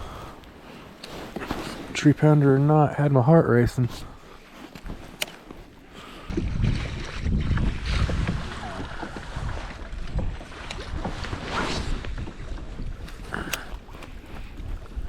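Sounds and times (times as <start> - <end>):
water washing around kayak: 5.6 - 15.0
wind buffeting microphone: 6.3 - 15.0.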